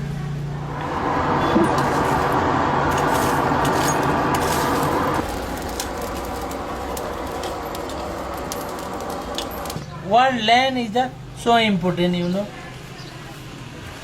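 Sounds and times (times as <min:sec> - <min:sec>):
forge fire rushing: 0:00.5 - 0:09.9
faint crackles: 0:01.7 - 0:10.0.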